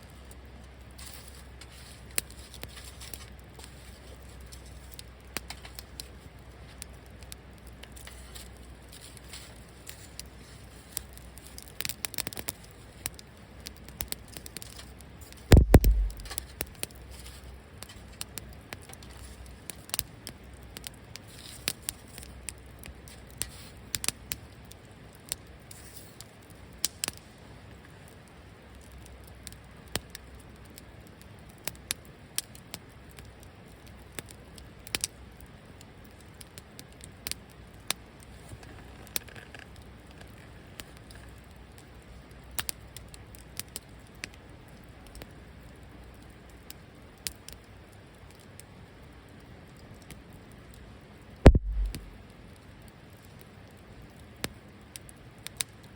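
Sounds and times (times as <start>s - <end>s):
wood fire crackling: 0.0s - 55.9s
loud low thump: 15.5s - 16.4s, 51.5s - 52.2s
sharp pops: 15.5s - 16.9s, 51.5s - 52.2s.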